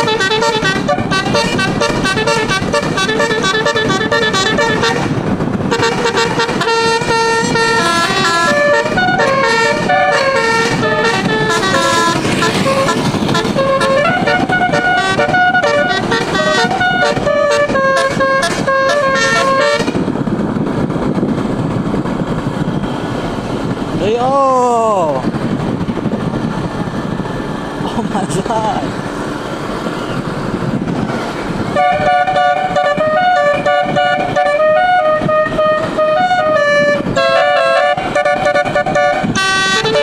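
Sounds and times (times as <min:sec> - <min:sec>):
musical air horn melody: 0:00.0 - 0:20.1, 0:31.7 - 0:40.0
steady noisy rumble: 0:00.0 - 0:40.0.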